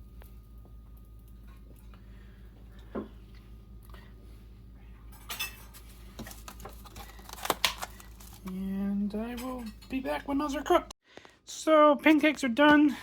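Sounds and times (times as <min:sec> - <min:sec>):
steady low hum: 0:00.0 - 0:10.9
dishes clinking and clattering: 0:05.1 - 0:05.9.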